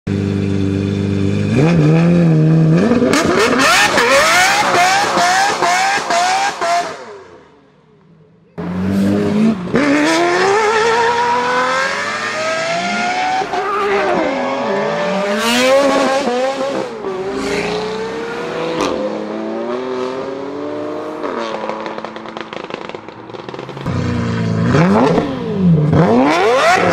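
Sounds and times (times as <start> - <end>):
sports car engine accelerating hard: 8.6 - 26.9.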